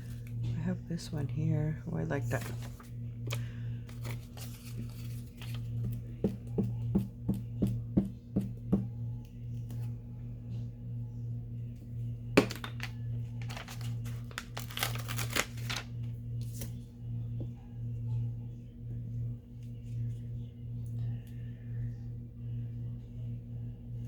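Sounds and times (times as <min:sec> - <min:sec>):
steady low hum: 0:00.0 - 0:24.0
paper rustling: 0:02.3 - 0:02.9, 0:03.9 - 0:05.9, 0:13.4 - 0:16.8.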